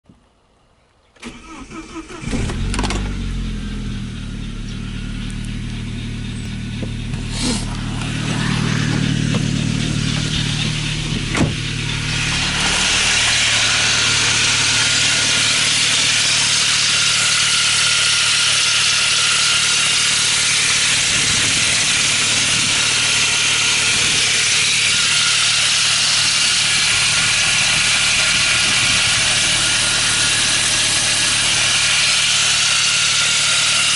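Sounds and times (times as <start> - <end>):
car engine starting and idling: 1.2 - 33.9
loud hiss-like hum: 7.2 - 33.9.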